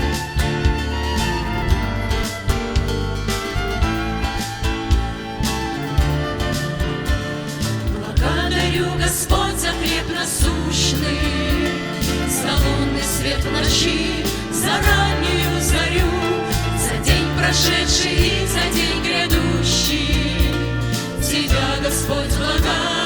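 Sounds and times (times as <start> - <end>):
worship song with instruments: 0.0 - 23.0
vocal group singing: 6.4 - 23.0.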